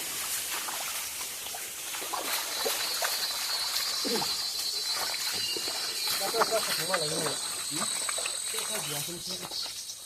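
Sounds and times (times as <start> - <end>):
stream water running: 0.0 - 10.0
high-pitched insect drone: 2.3 - 10.0.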